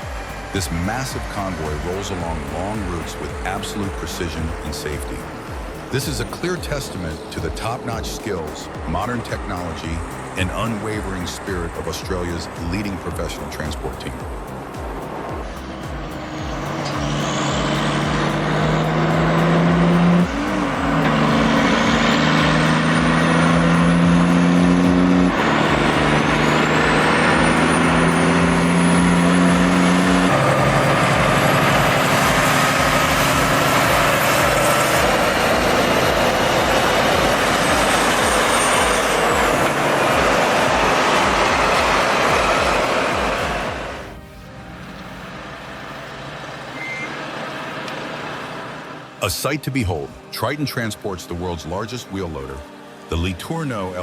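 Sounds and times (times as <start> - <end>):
truck diesel engine accelerating: 0.0 - 50.3
high whistle climbing: 13.9 - 48.9.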